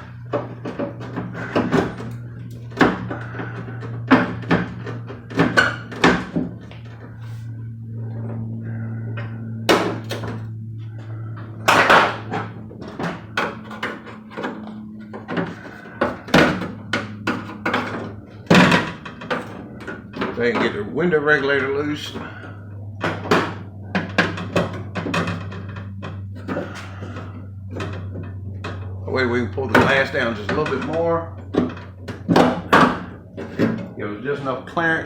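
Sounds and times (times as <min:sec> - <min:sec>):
steady low hum: 0:00.0 - 0:35.0
metal truck door knocks and clatters: 0:31.5 - 0:33.8.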